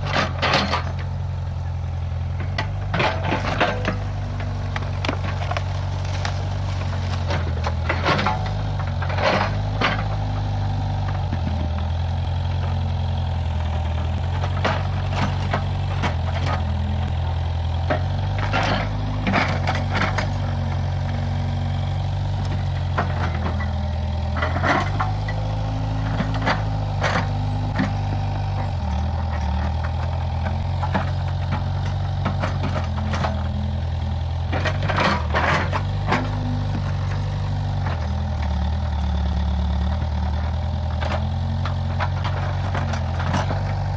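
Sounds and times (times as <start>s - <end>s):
diesel engine running: 0.0s - 43.9s
wood and brush breaking: 2.9s - 10.2s.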